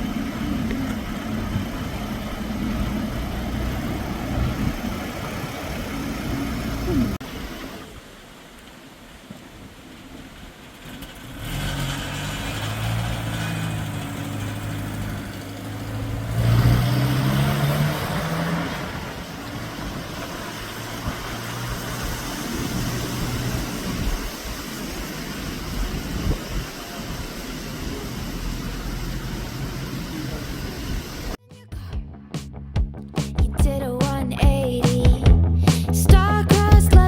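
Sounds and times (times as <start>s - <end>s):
fire truck engine running: 0.0s - 7.2s, 12.0s - 31.4s.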